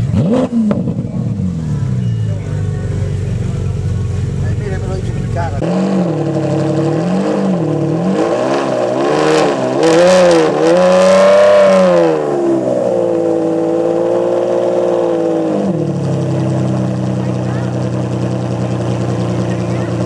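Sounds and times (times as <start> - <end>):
sports car engine revving: 0.0 - 20.0.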